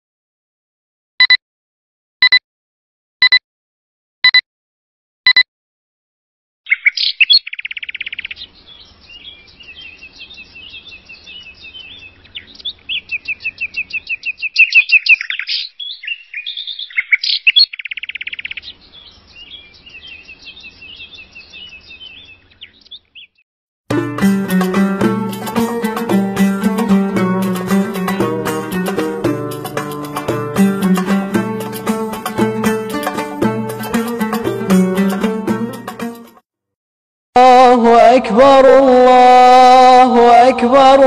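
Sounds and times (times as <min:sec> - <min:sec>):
short countdown beep: 0:01.2 - 0:01.4, 0:02.2 - 0:02.4, 0:03.2 - 0:03.4, 0:04.2 - 0:04.4, 0:05.3 - 0:05.5
songbirds chirping and trilling: 0:06.7 - 0:23.4
plucked string music: 0:23.9 - 0:36.4.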